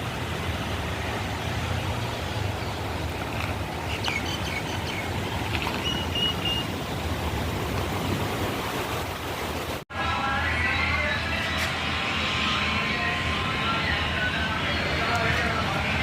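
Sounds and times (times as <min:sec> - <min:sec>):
steady rushing noise: 0:00.0 - 0:09.8.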